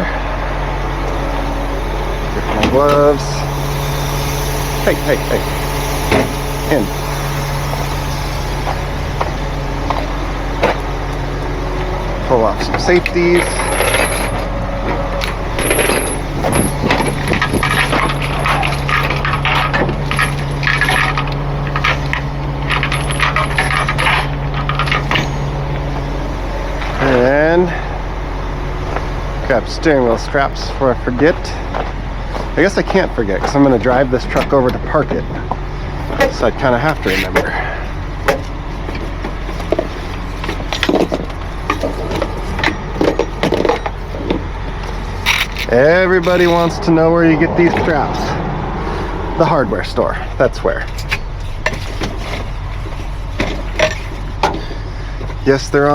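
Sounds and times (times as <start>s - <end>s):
gear knocking and rattling: 0.0s - 28.0s, 28.8s - 48.3s, 49.4s - 55.9s
truck engine running: 0.0s - 55.9s
metal chain links clinking: 13.2s - 14.4s, 15.2s - 25.9s.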